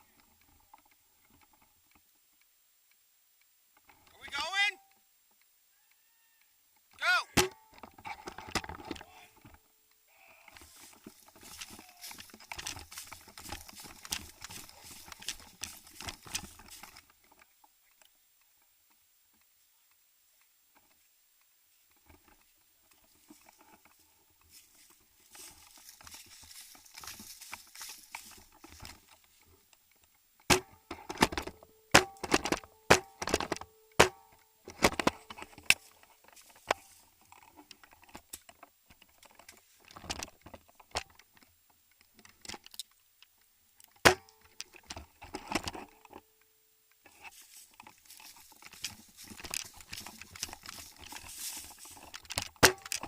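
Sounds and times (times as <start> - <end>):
airsoft gun shots: 7.4 - 7.7, 32.0 - 33.3
soft rustling: 10.5 - 30.4, 35.1 - 53.0.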